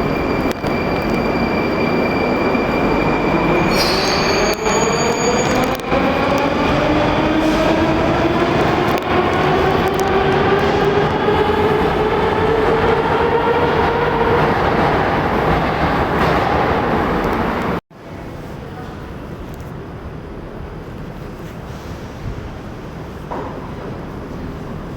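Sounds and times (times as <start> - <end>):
train wheels rumbling on rails: 0.0 - 17.8.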